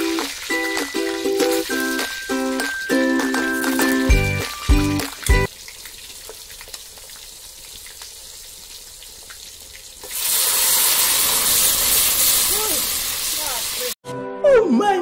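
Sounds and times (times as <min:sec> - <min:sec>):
vegetables sizzling in a wok: 0:00.0 - 0:14.0
loud sizzling hiss: 0:10.0 - 0:14.0.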